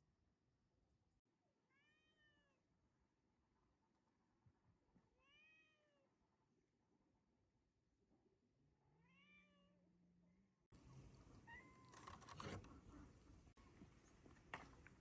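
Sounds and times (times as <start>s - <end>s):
cat meowing faintly: 1.7s - 2.7s, 5.1s - 6.2s, 8.9s - 10.0s.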